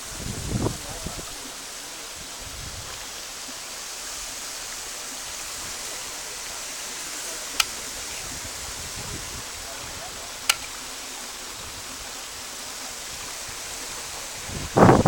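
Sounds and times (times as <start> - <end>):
waterfall rushing: 0.0 - 15.0
sharp click: 7.6 - 7.8, 10.5 - 10.8.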